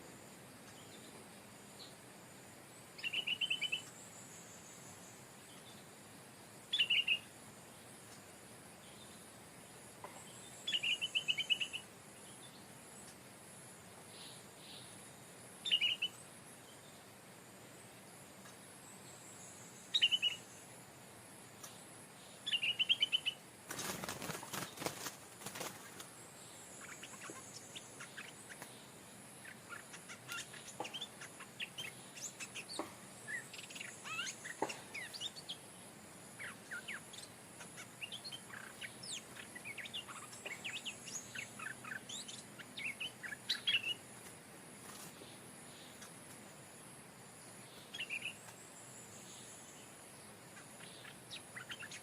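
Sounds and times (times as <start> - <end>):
bird trilled calls and chirps: 2.9 - 5.9, 6.7 - 7.3, 10.1 - 13.2, 15.6 - 16.9, 18.5 - 20.7, 21.6 - 35.7, 36.3 - 44.1, 47.5 - 52.0.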